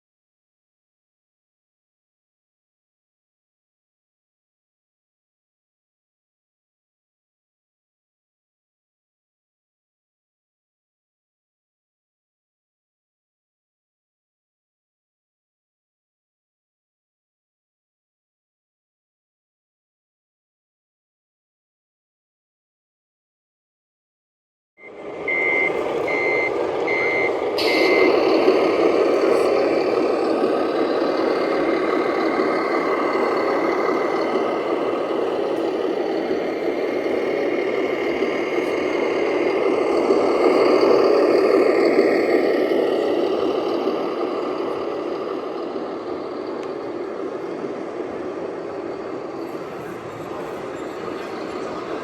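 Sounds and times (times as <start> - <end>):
reversing beeps: 24.8 - 28.5
truck engine sound: 24.8 - 52.0.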